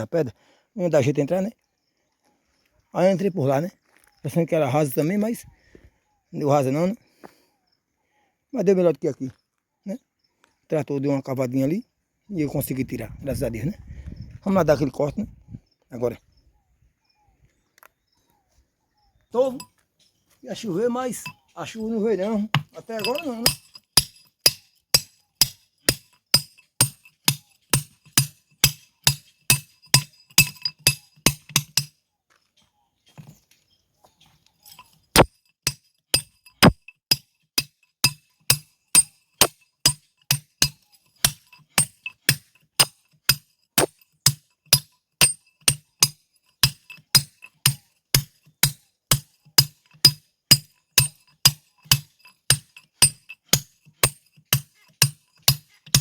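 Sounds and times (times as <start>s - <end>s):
hammer striking steel tool on stone: 22.2s - 31.9s, 34.7s - 56.0s.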